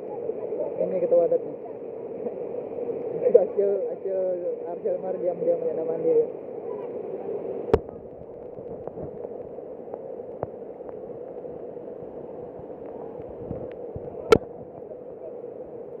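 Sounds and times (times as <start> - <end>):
faint ticks: 8.3 - 11.5, 12.8 - 14.4.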